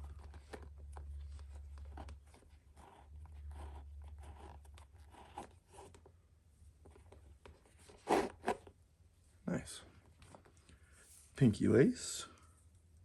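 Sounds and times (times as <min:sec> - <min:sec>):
leather lace scratchy rubbing: 0:00.0 - 0:06.0, 0:07.7 - 0:08.6.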